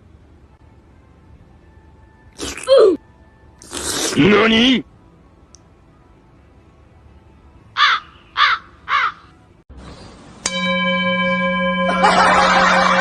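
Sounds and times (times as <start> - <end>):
caw-like animal calls: 7.8 - 9.3
steady ringing tone: 10.4 - 13.0.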